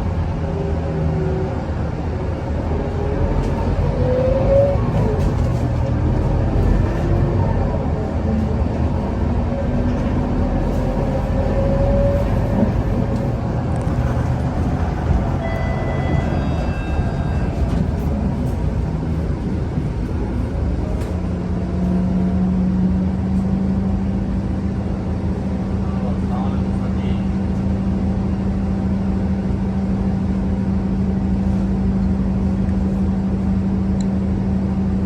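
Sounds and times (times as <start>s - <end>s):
bus engine and road rumble: 0.0s - 35.0s
rising whine: 6.9s - 21.2s.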